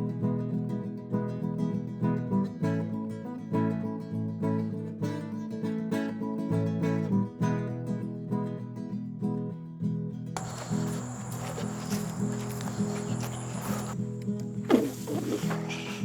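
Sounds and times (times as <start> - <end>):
acoustic guitar strumming: 10.4 - 16.0.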